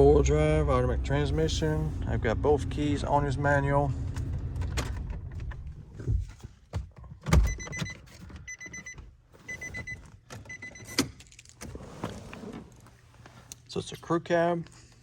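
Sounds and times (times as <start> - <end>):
car warning chime beeps: 7.5 - 11.0.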